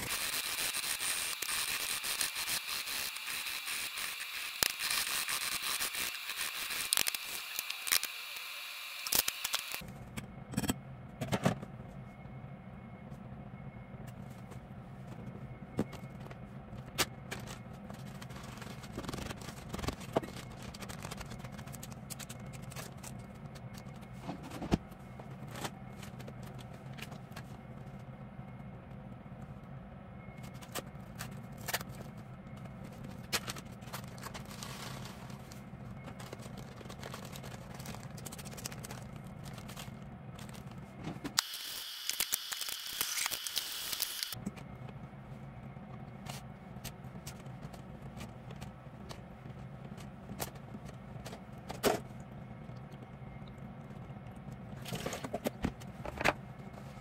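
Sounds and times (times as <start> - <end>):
utensils clicking and scraping: 0.0 - 9.8.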